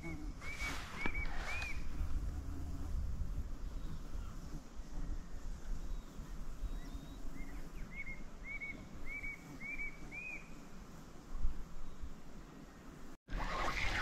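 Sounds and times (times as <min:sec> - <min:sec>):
bird whistling: 0:00.4 - 0:01.9, 0:07.9 - 0:10.5.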